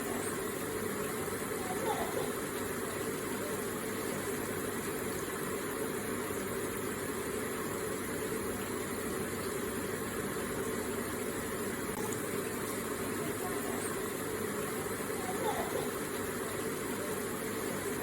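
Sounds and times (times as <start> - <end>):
water falling and splashing: 11.9 - 16.9.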